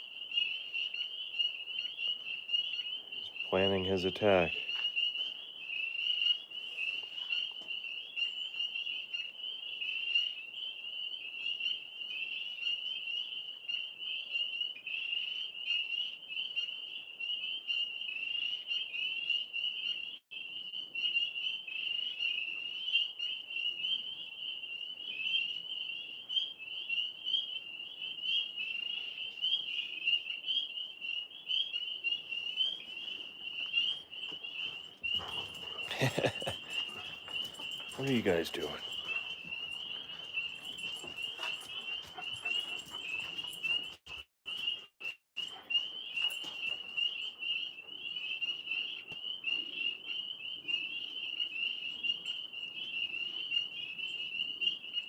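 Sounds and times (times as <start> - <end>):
frogs chorus calling: 0.0 - 43.2.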